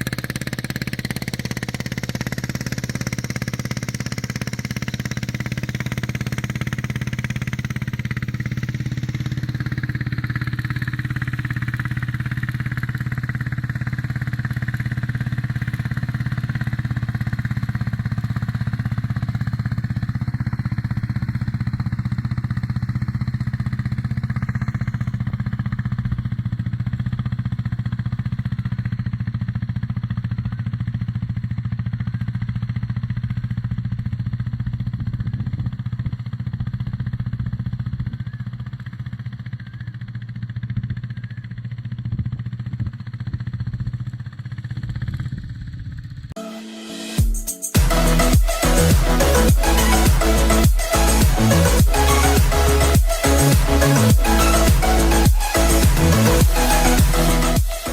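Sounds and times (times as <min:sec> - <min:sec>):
small tractor engine putter: 0:00.0 - 0:46.3.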